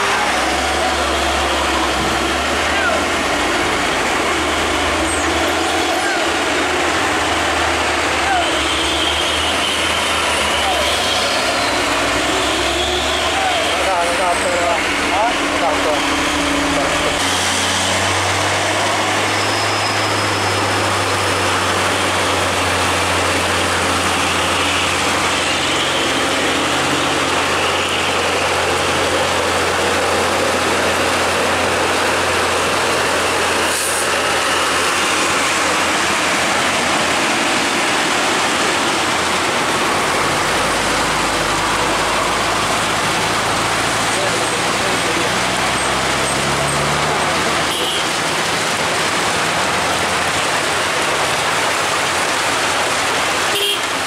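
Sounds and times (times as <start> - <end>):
road noise: 0.0 - 54.0.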